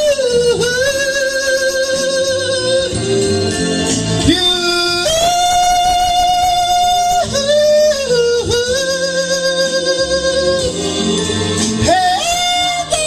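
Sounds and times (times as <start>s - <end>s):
backing music: 0.0s - 13.0s
person singing long high notes: 4.2s - 11.1s, 11.8s - 13.0s.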